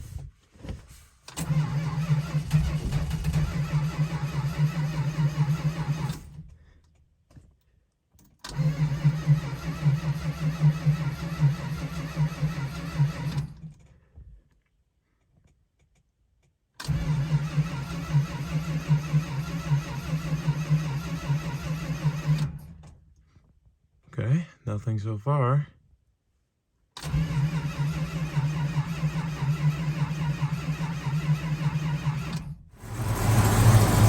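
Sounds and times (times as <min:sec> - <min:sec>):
starter cranking engine: 0:01.3 - 0:06.5, 0:08.4 - 0:13.7, 0:16.8 - 0:22.8, 0:27.0 - 0:34.0.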